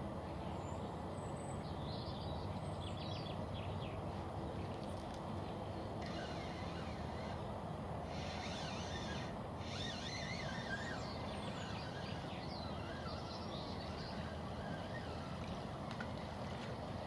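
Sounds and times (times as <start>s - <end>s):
songbirds singing and chirping: 11.0s - 15.2s.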